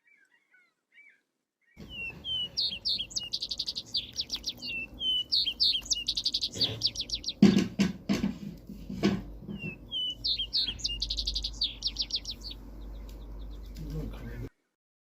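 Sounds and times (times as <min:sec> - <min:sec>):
songbird singing trills: 0:00.0 - 0:08.0, 0:09.2 - 0:14.5
dull thumps: 0:05.8 - 0:11.0.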